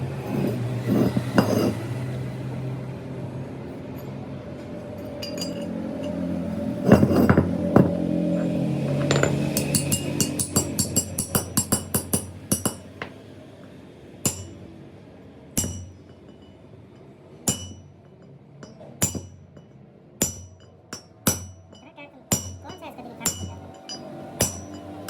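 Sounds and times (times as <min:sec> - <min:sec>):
hammer striking metal: 0:05.0 - 0:13.2, 0:14.2 - 0:14.7, 0:15.6 - 0:25.0.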